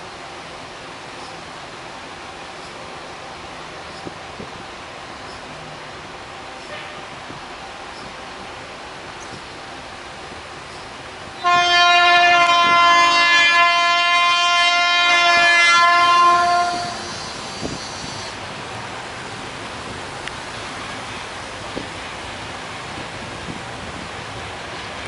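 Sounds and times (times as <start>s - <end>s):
train approaching: 0.0s - 25.0s
locomotive air horn blast: 6.6s - 7.2s, 11.4s - 17.8s.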